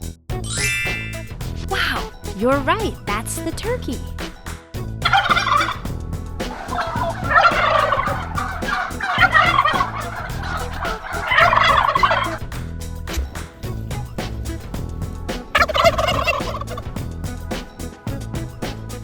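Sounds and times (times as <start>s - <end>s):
background music with steady beat: 0.0s - 19.0s
turkey gobbling: 5.0s - 5.8s, 6.5s - 12.4s, 15.4s - 16.9s.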